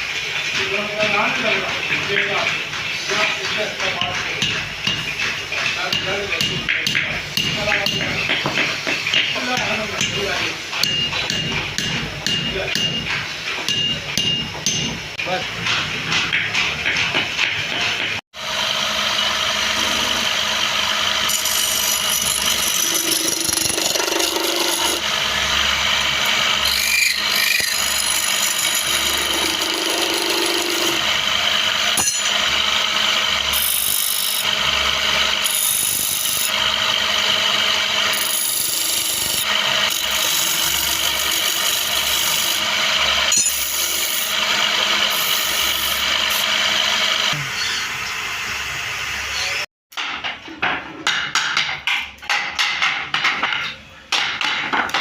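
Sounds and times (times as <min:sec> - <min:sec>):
machine hum: 0:18.4 - 0:49.7
tool rasping against wood: 0:21.3 - 0:25.1, 0:26.2 - 0:31.3.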